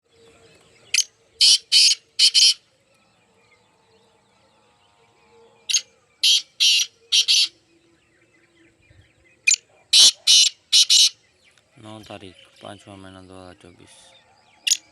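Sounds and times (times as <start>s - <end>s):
partridge calling harshly: 0.9s - 2.6s, 5.7s - 7.6s, 9.5s - 11.2s.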